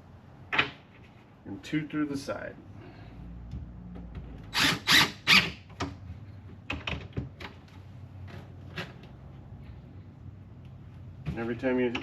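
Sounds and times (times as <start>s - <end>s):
drill driving screws: 4.5s - 5.6s.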